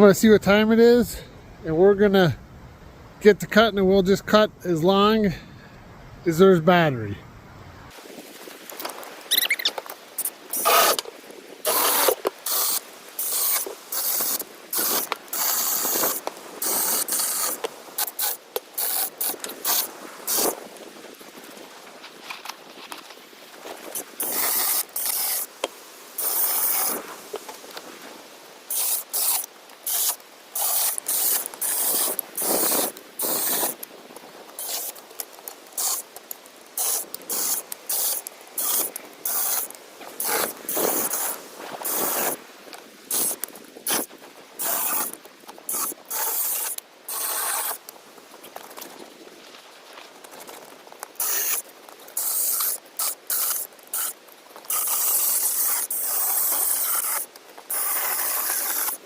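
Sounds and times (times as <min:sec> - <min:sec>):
electric chainsaw cutting in bursts: 0:10.2 - 0:11.0, 0:11.6 - 0:20.5, 0:24.2 - 0:25.5, 0:26.2 - 0:27.0, 0:28.7 - 0:33.8, 0:34.6 - 0:35.0, 0:35.8 - 0:36.1, 0:36.8 - 0:42.4, 0:43.1 - 0:47.8, 0:51.2 - 0:51.6, 0:52.2 - 0:59.0.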